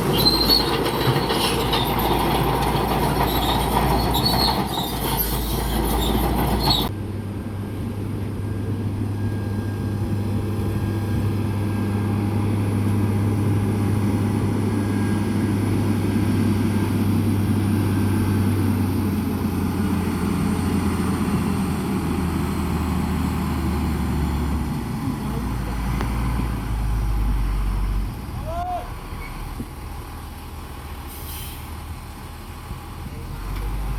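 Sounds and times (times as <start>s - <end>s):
squeaking and clanking: 0.0s - 6.9s
diesel machinery rumbling: 0.0s - 33.9s.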